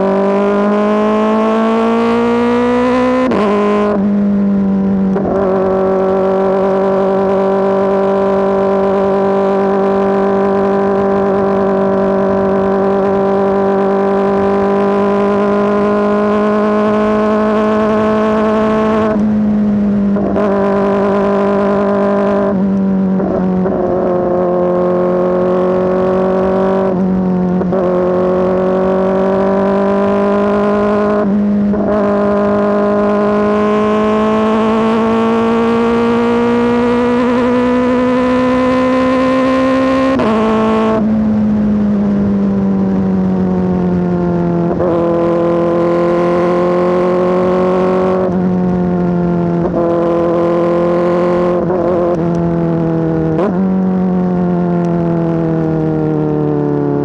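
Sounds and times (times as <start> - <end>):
motorcycle engine high buzzing: 0.0 - 57.0.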